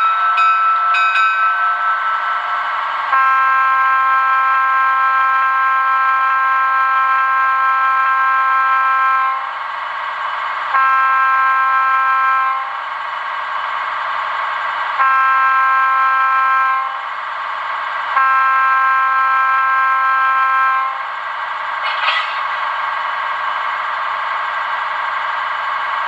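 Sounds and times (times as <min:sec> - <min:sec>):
diesel engine sound: 0:00.0 - 0:26.0
model train air horn: 0:01.4 - 0:09.5, 0:10.7 - 0:12.8, 0:15.0 - 0:17.0, 0:18.2 - 0:21.0.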